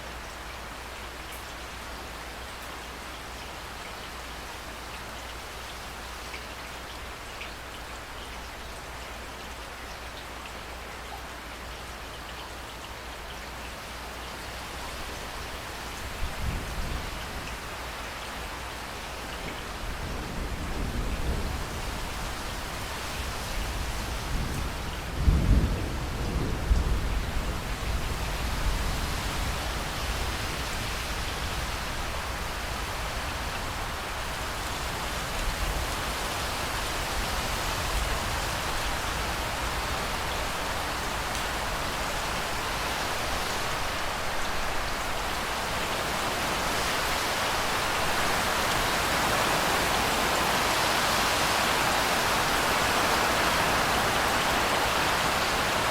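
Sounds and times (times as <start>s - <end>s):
steady rain falling: 0.0s - 55.9s
low rumble of thunder: 19.4s - 36.4s.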